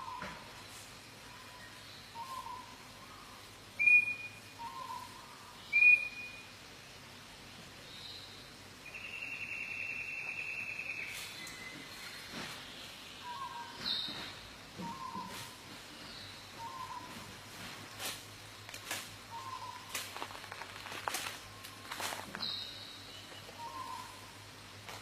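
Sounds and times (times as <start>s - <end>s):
bird calling: 1.3s - 6.4s, 13.2s - 15.7s, 16.5s - 17.3s, 19.3s - 24.4s
high whistled bird notes: 3.8s - 5.0s, 5.7s - 6.4s.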